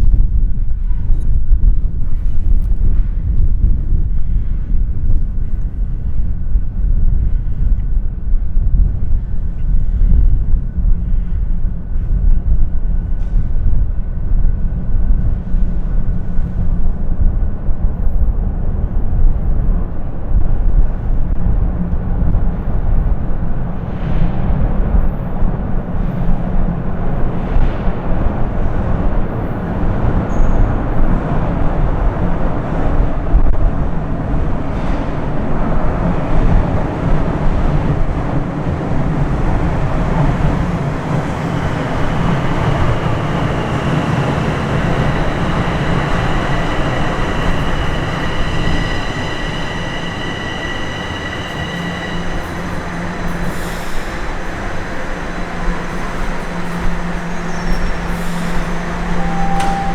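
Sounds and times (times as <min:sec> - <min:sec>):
subway train rumbling on rails: 0:00.0 - 0:59.9
high whine: 0:34.2 - 0:59.9.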